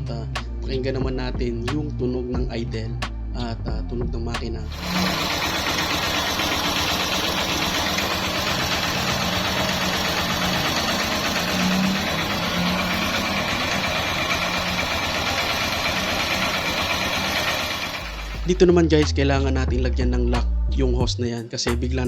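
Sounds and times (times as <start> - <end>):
motorcycle engine idling: 4.7 - 18.7.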